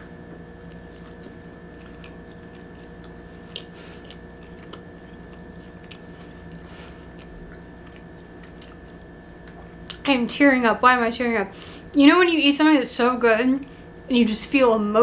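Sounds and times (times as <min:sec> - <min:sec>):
steady low hum: 0:00.0 - 0:15.0
person chewing: 0:00.6 - 0:10.0.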